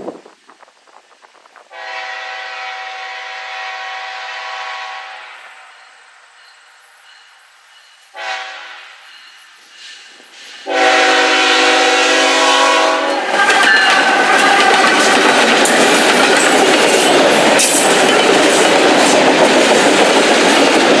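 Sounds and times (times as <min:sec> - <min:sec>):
train passing with wheel noise: 0:00.0 - 0:21.0
train horn blasts: 0:01.7 - 0:05.9, 0:08.1 - 0:09.1, 0:10.7 - 0:14.8.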